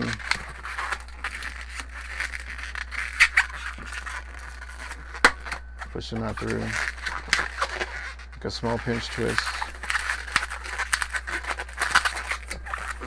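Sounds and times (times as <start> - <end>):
balloon rubbing and squeaking: 0.0 - 13.0.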